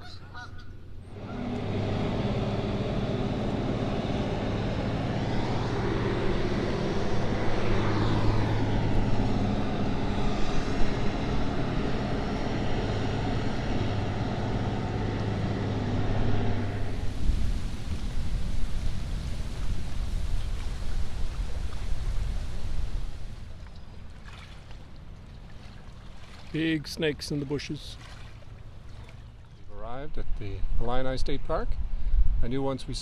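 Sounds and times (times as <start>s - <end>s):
powered craft motor droning: 0.9s - 18.6s.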